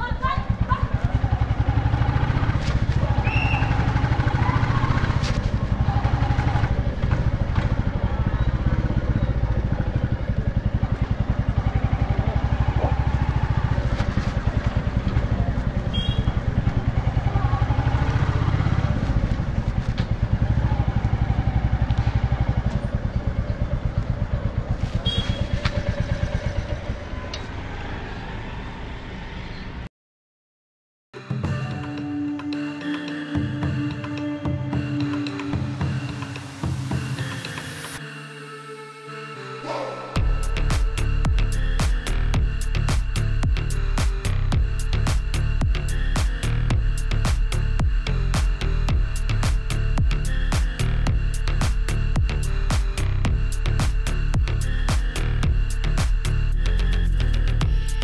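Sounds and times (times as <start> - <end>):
motorcycle engine running: 0.0 - 27.6, 40.2 - 58.0.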